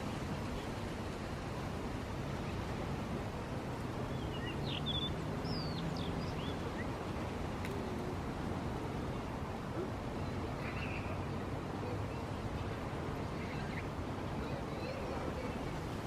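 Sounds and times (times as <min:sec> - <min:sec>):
wind: 0:00.0 - 0:16.0
bird chirping: 0:04.1 - 0:06.9.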